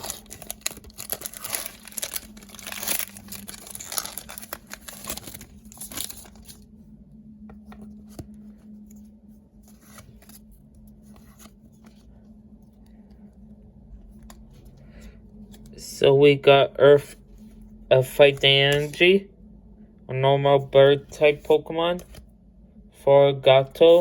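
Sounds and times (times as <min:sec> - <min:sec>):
cards rustling and clicking: 0:00.0 - 0:06.6, 0:18.2 - 0:19.0
foil wrapper tearing and crinkling: 0:00.0 - 0:06.6.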